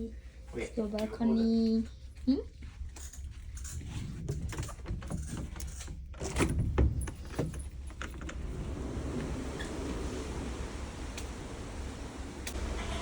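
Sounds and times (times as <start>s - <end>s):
sliding door rattling: 3.8s - 13.0s.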